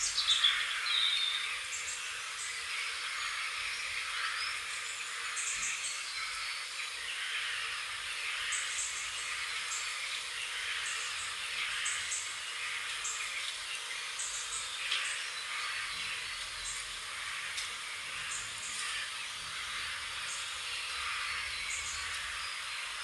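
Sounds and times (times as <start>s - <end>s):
birds chirping and calling: 0.0s - 23.0s
hiss-like background chorus: 0.0s - 23.0s.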